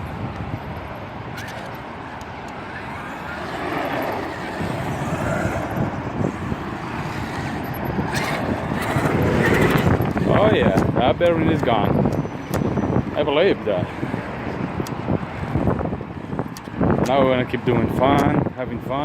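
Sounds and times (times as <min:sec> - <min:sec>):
electric motor whine: 0:01.4 - 0:10.6.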